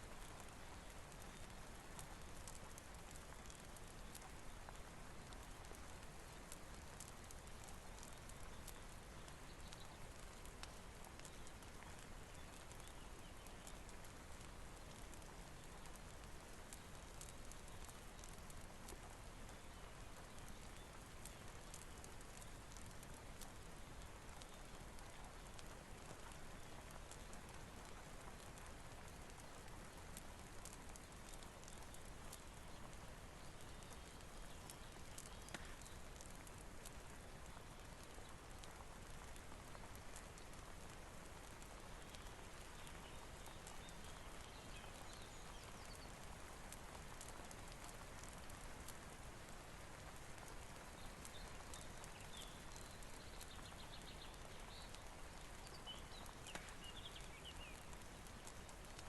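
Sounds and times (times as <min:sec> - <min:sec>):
faint steady rain hiss: 0:00.0 - 0:59.0
fire crackling and popping: 0:00.0 - 0:59.0.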